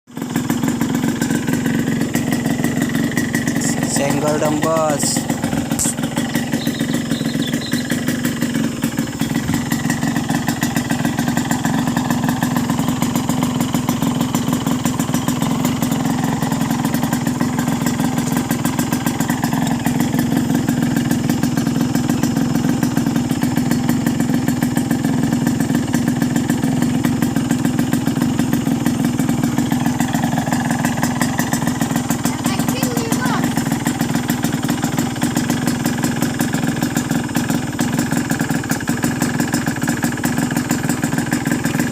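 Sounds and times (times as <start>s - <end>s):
engine knocking clatter: 0.1s - 41.9s
two-stroke engine idling: 0.1s - 41.9s.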